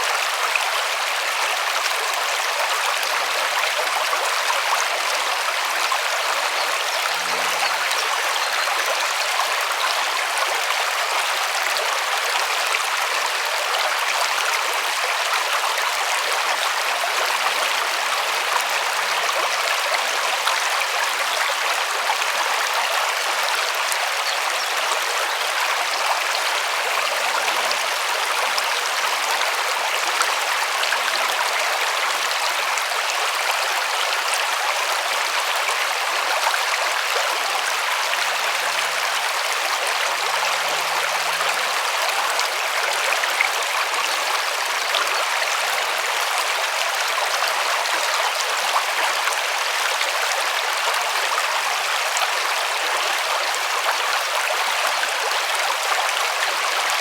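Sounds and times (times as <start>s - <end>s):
river water rushing over stones: 3.8s - 14.8s.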